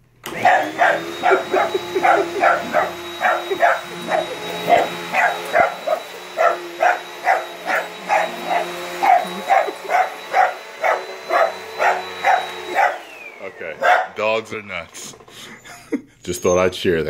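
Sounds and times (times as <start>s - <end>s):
vacuum cleaner motor hum: 0.0s - 14.2s
dog barking: 0.4s - 13.1s, 13.8s - 14.2s.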